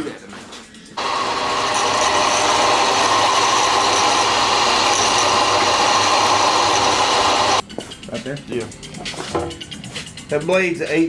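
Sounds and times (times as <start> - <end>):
power tool whining: 1.0 - 7.6.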